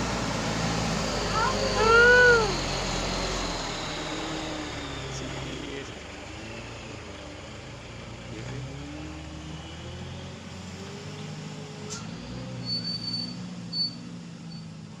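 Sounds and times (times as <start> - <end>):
truck engine passing: 0.0 - 14.9
short high squeals: 1.0 - 4.0, 11.9 - 14.8.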